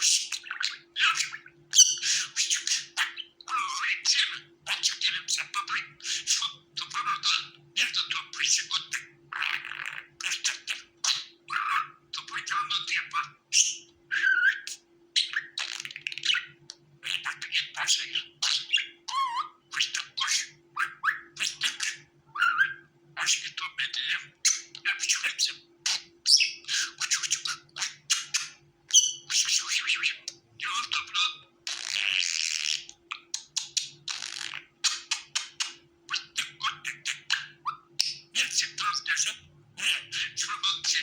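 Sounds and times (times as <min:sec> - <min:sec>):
budgerigar chattering and warbling: 0:00.0 - 0:41.0.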